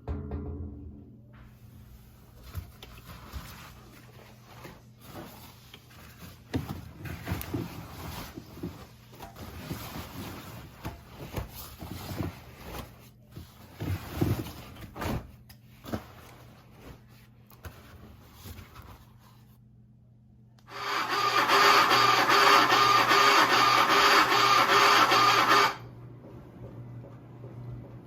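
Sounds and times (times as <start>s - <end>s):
washing machine knocks and thumps: 0.0s - 1.0s
washing machine humming: 0.0s - 28.0s.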